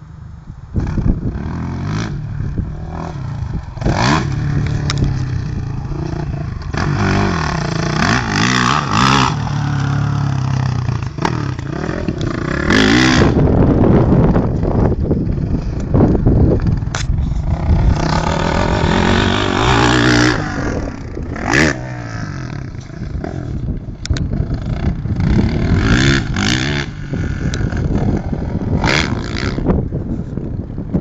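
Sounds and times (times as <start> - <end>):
motocross bike engine revving: 0.8 - 30.0.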